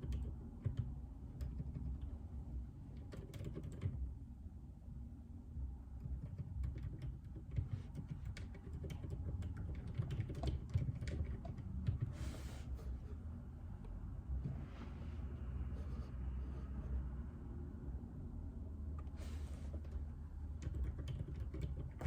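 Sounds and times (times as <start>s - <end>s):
muted keyboard keystrokes: 0.0s - 2.2s, 2.9s - 4.1s, 6.0s - 12.2s, 19.7s - 22.0s.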